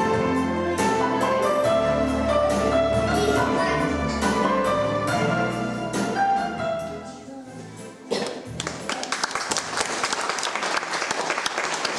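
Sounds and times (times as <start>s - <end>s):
music: 0.0s - 11.9s
audience applause: 8.6s - 11.9s.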